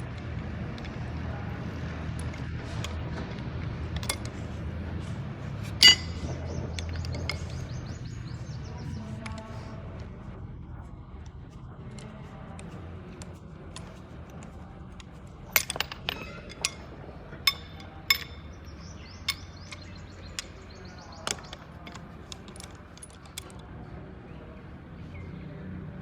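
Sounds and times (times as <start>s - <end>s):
steady low hum: 0.0s - 26.0s
metallic clinks of tools: 3.9s - 4.5s, 5.6s - 8.3s, 12.0s - 23.6s.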